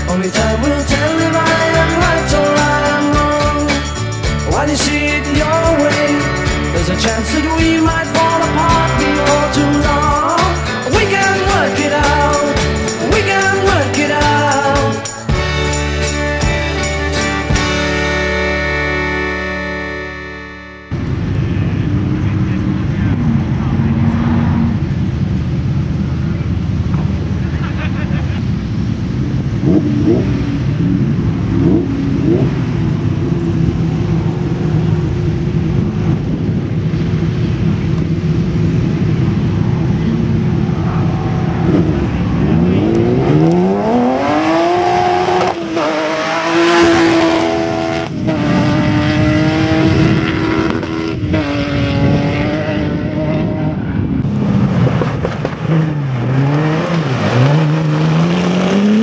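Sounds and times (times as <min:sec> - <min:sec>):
car engine revving through gears: 0:22.1 - 0:25.2, 0:29.5 - 0:59.0.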